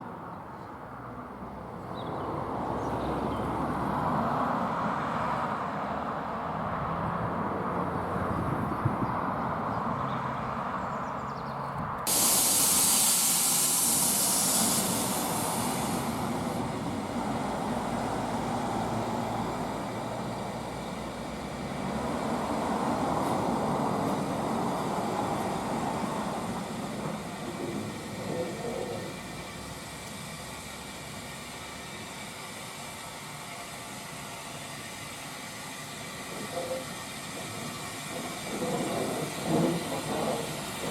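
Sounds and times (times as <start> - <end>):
steam train rumble: 12.0 - 40.9
loud hiss of escaping steam: 12.1 - 40.9.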